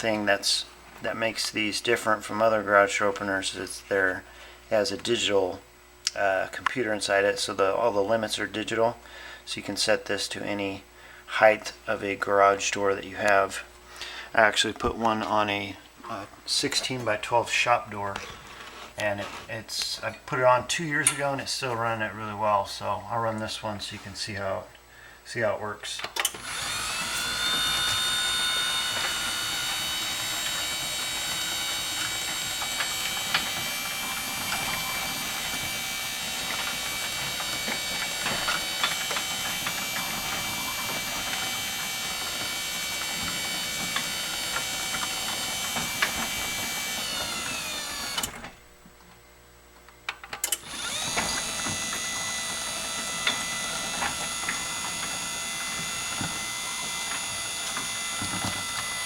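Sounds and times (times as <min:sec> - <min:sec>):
garage door opener motor whine: 0:26.2 - 0:49.7, 0:50.3 - 0:59.0.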